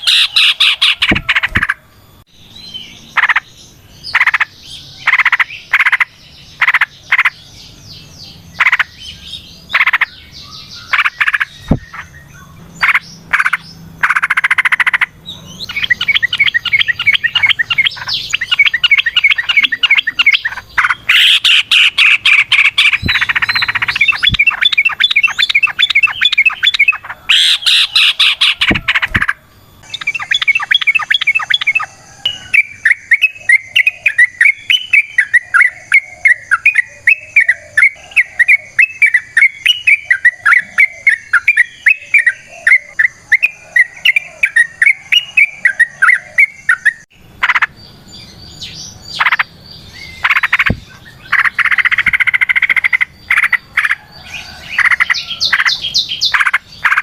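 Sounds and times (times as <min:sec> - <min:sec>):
bird singing: 0:00.0 - 0:57.0.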